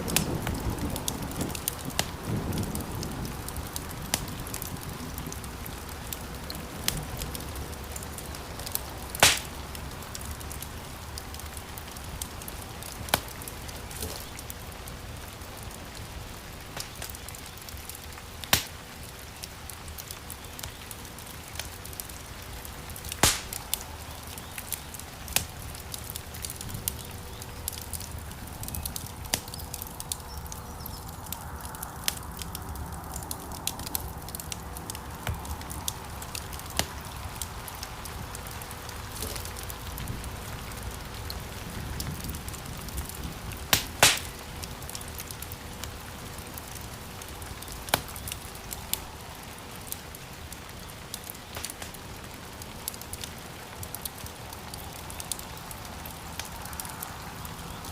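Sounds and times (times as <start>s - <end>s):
loud sharp pops of fire: 0.0s - 5.3s, 8.2s - 9.8s, 12.2s - 14.6s, 16.7s - 22.1s, 23.0s - 30.4s, 32.1s - 37.9s, 42.0s - 46.0s, 47.4s - 49.2s, 51.1s - 52.0s
wood fire crackling: 0.0s - 57.9s.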